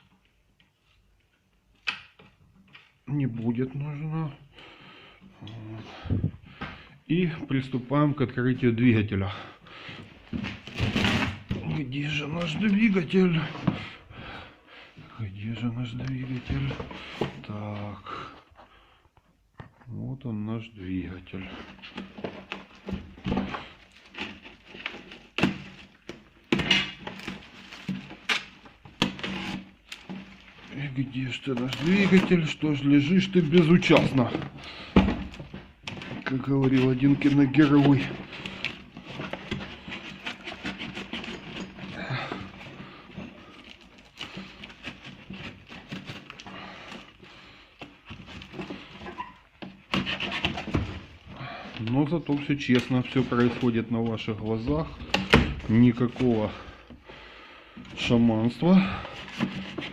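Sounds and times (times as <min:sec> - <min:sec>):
packaging rustling: 0:21.1 - 0:59.9.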